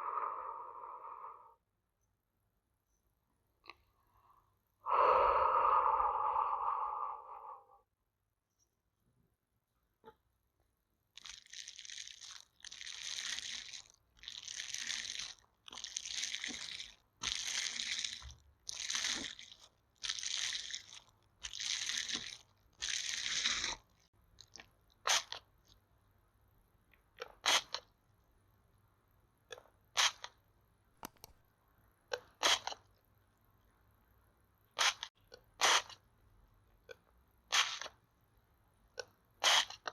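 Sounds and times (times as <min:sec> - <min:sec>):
close scratchy rubbing: 0:34.8 - 0:36.0, 0:37.5 - 0:38.0, 0:39.4 - 0:39.9.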